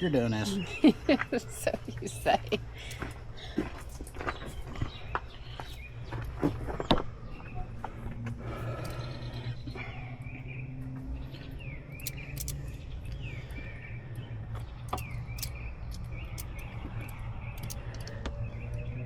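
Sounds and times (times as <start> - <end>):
birds chirping: 0.0 - 19.0
steady low hum: 0.0 - 19.0
sharp clicks: 11.9 - 13.2, 14.1 - 18.9.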